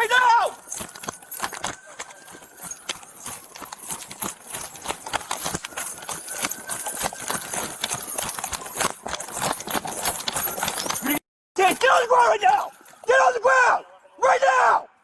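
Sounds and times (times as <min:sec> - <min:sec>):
gear clattering: 0:00.0 - 0:13.1
running footsteps: 0:00.0 - 0:13.4.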